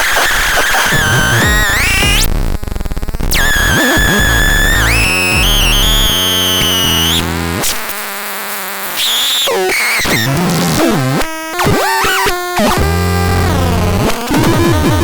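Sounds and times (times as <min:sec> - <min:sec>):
buzzy synthesizer tones: 0:00.0 - 0:07.9, 0:09.0 - 0:15.0
pulsing synthesizer noise: 0:00.7 - 0:02.4.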